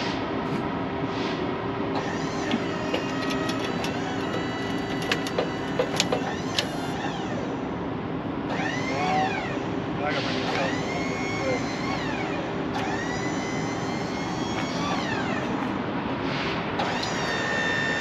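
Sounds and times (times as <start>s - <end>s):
sawmill machine hum and whine: 0.0s - 18.0s
sharp clicks or knocks: 2.5s - 6.7s.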